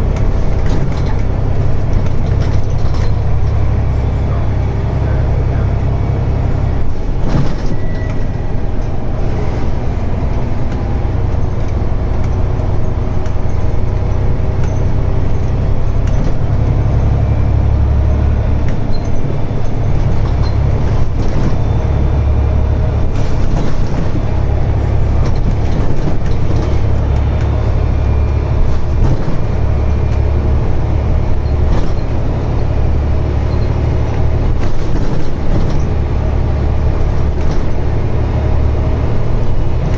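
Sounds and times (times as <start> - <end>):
bus engine low rumble: 0.0 - 39.9
short rattles: 0.2 - 3.9.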